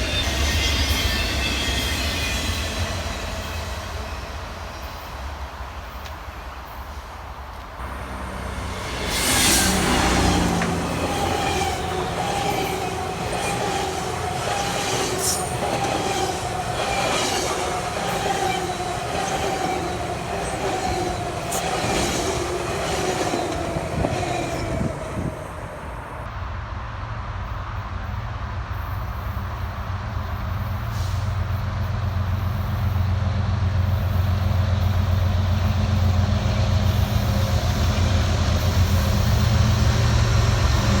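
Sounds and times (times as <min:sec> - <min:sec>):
wheel squeal: 0:00.0 - 0:03.7
train wheels clicking over rail joints: 0:07.5 - 0:26.1
low engine drone: 0:07.8 - 0:12.2.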